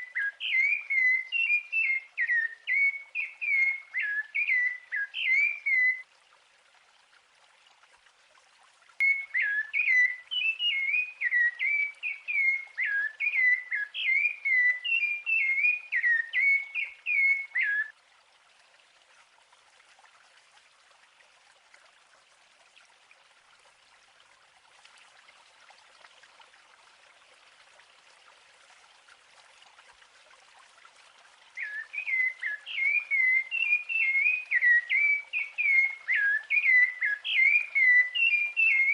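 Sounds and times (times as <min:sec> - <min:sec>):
songbird whistling song: 0:00.0 - 0:06.0, 0:09.0 - 0:17.9, 0:31.6 - 0:38.9
faint steady hiss: 0:00.0 - 0:38.9.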